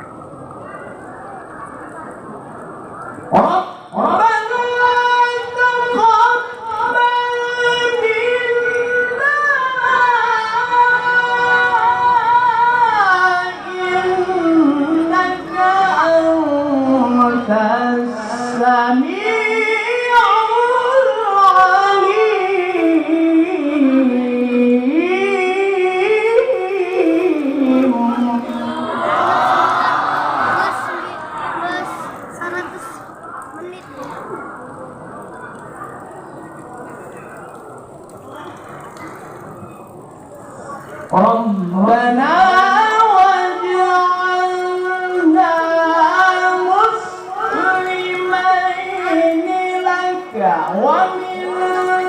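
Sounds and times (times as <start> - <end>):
man reciting in high voice: 3.3 - 29.0, 41.1 - 52.0.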